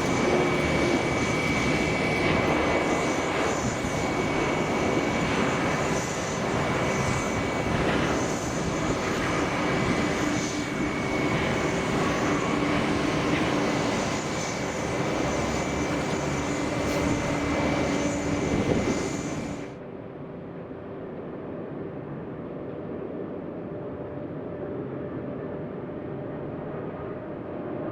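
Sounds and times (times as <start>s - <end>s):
jet engines whining: 0.0s - 20.2s
dull steady noise: 0.0s - 27.9s.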